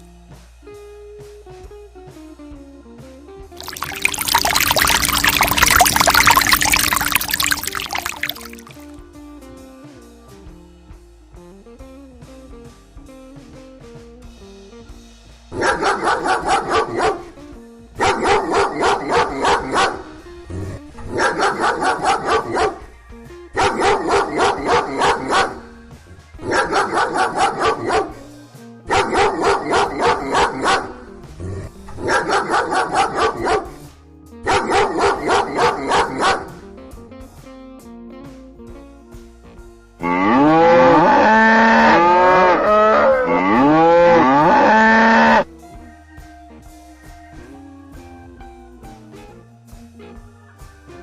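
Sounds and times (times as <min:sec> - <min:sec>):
soft background music: 0:00.0 - 0:51.0
dog yapping: 0:15.6 - 0:17.3, 0:18.0 - 0:20.0, 0:21.2 - 0:22.8, 0:23.6 - 0:25.6, 0:26.5 - 0:28.2, 0:28.9 - 0:31.0, 0:32.0 - 0:33.8, 0:34.5 - 0:36.6.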